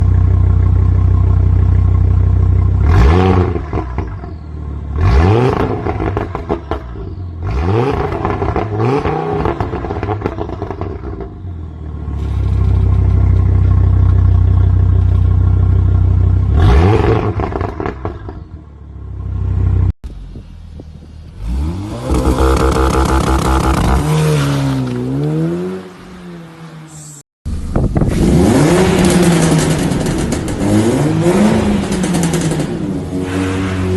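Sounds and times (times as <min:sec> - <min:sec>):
car engine revving: 0:04.9 - 0:11.4, 0:21.3 - 0:26.9, 0:28.0 - 0:33.9
exhaust pops and bangs: 0:28.8 - 0:33.9.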